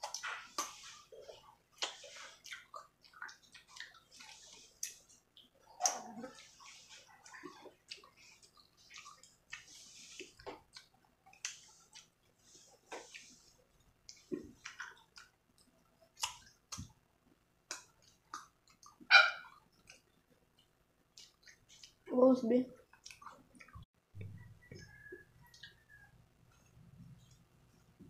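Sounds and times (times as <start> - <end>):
wet chewing mouth smacks: 1.8 - 6.7.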